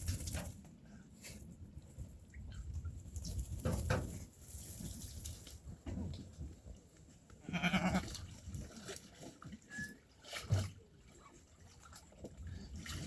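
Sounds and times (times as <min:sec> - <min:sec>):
sheep bleating: 0:07.4 - 0:08.0.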